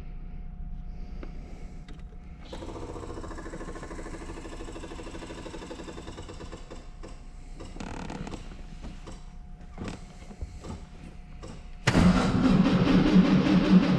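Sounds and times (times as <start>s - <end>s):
car engine cranking: 11.9s - 13.9s.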